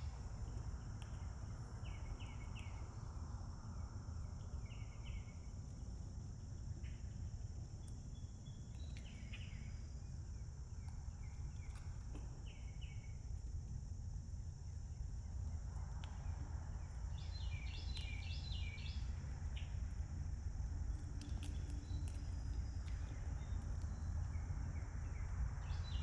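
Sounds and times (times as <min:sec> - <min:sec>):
small birds chirping: 0:16.8 - 0:19.8.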